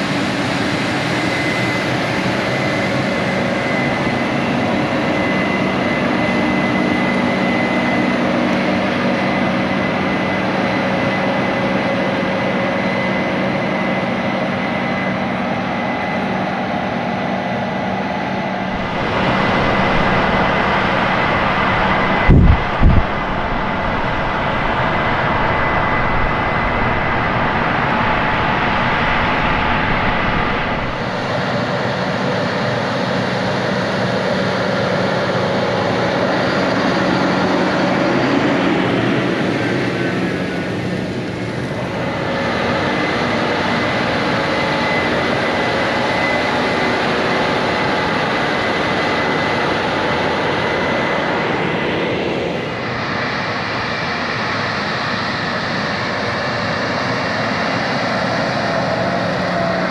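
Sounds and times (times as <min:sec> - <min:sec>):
steady mechanical whine: 0:00.0 - 0:59.9
harvest machinery running: 0:18.3 - 0:49.1.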